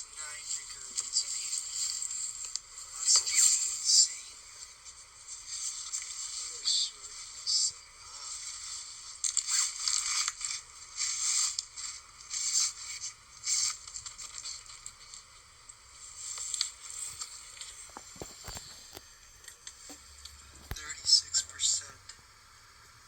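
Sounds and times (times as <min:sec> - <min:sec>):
rustling and crunching: 0:08.2 - 0:21.2.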